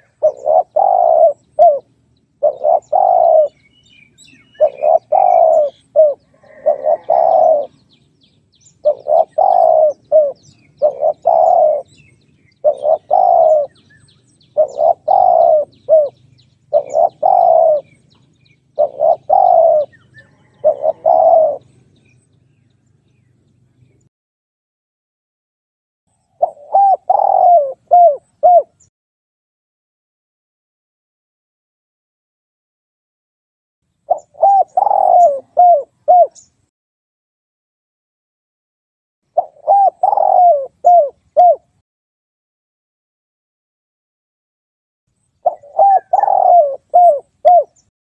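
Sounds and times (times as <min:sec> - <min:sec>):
dove cooing: 0:00.0 - 0:08.0, 0:08.7 - 0:22.2, 0:26.4 - 0:28.9, 0:34.1 - 0:36.5, 0:39.4 - 0:41.8, 0:45.4 - 0:47.9
small birds chirping: 0:00.0 - 0:24.1, 0:26.1 - 0:28.9, 0:33.9 - 0:36.7, 0:39.3 - 0:41.8, 0:45.1 - 0:47.9.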